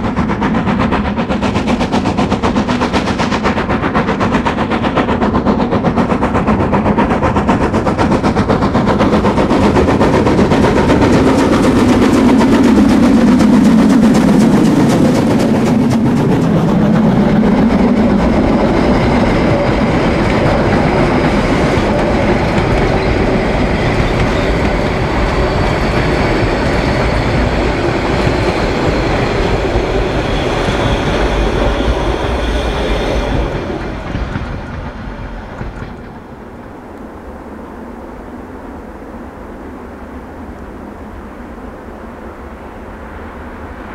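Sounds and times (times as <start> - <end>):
wheels clacking over rail joints: 0.0 - 36.9
steam train running past: 0.0 - 43.9.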